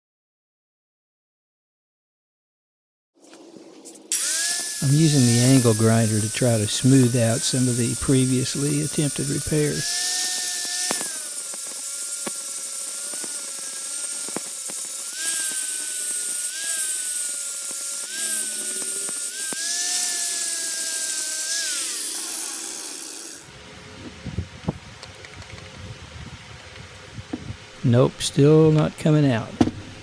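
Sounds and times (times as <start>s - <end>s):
angle grinder grinding metal: 4.1s - 23.6s.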